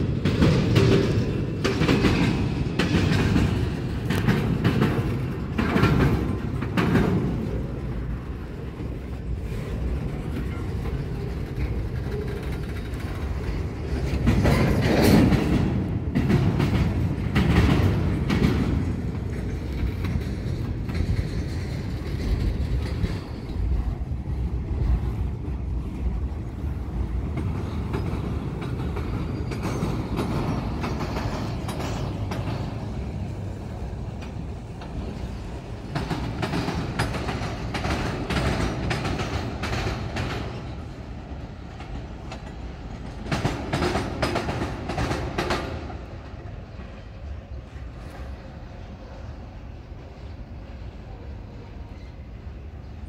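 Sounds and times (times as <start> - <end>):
freight train rumbling: 0.0 - 53.0.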